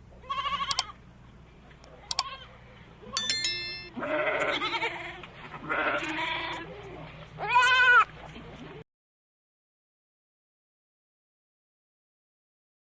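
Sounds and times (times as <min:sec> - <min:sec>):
goat bleating: 0:00.2 - 0:01.0, 0:02.1 - 0:02.5, 0:03.9 - 0:08.2
bright ringing tone: 0:03.2 - 0:04.4.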